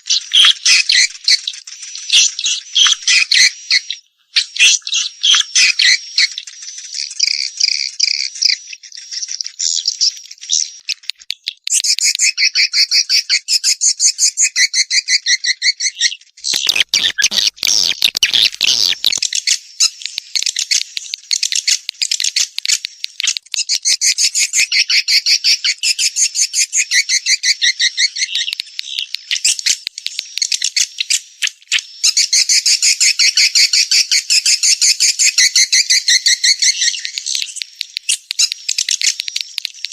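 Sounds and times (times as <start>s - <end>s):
swiftlet chirping twitters: 16.4s - 39.9s.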